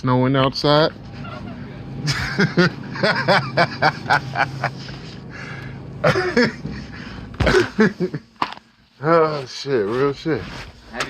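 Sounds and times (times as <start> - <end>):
steady low hum: 0.0 - 11.0
men laughing: 1.1 - 8.6.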